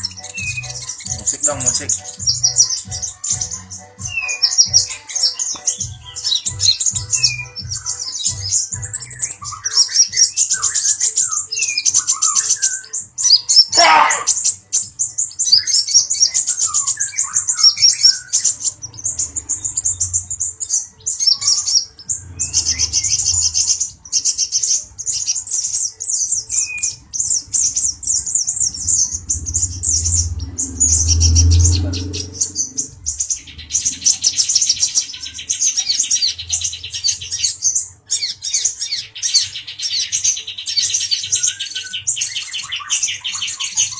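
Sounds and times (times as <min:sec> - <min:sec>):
bird chirping and twittering: 0:00.0 - 0:43.9.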